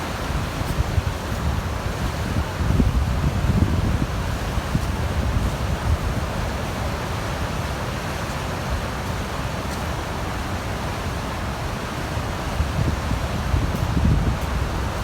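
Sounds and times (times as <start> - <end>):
wind buffeting microphone: 0.0 - 6.6, 12.6 - 15.0
waterfall roaring: 0.0 - 15.0.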